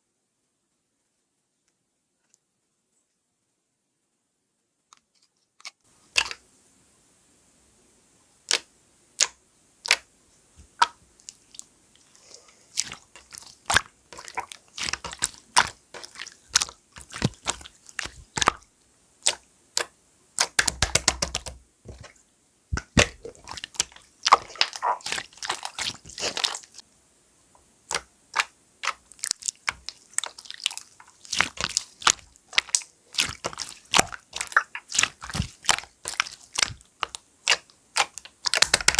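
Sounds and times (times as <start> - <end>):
slime clicking and popping: 8.4 - 10.1, 12.8 - 18.6, 19.2 - 21.6, 22.8 - 26.8, 27.9 - 38.9.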